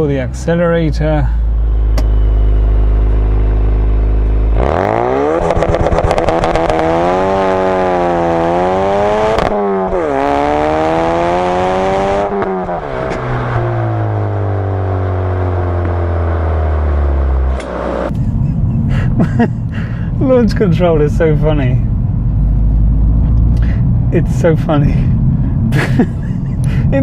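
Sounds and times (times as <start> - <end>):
car engine revving with crackle: 1.8 - 19.0.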